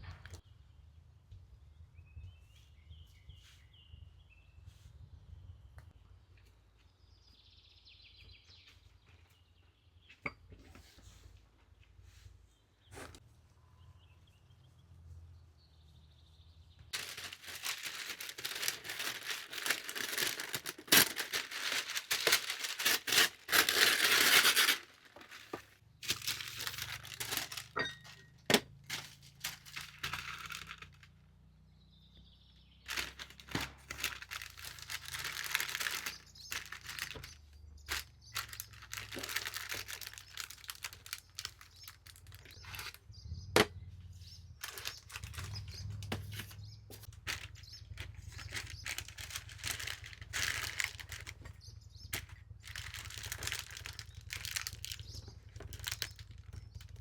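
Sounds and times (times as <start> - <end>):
rustling crinkling handling noise: 16.9 - 31.2, 32.8 - 43.8, 44.4 - 57.0.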